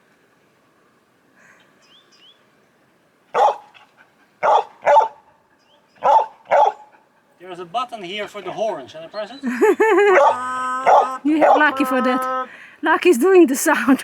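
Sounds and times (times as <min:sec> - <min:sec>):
dog barking: 0:03.4 - 0:03.7, 0:04.4 - 0:05.2, 0:06.0 - 0:06.9, 0:10.1 - 0:12.3.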